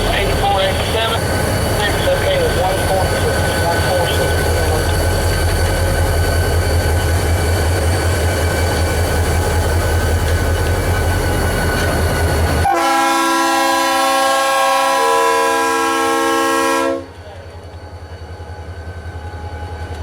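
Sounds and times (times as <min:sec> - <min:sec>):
diesel freight train rumbling: 0:00.0 - 0:20.0
locomotive air horn chord: 0:12.6 - 0:17.2.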